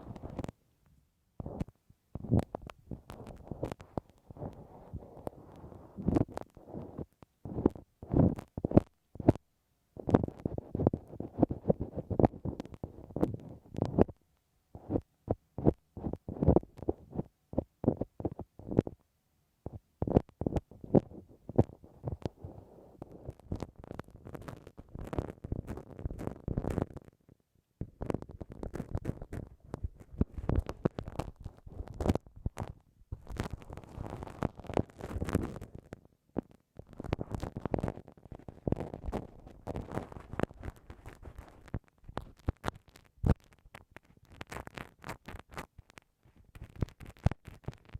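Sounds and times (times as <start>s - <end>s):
ear pick scraping in ear: 1.4s - 9.4s, 10.0s - 14.2s, 14.8s - 18.9s.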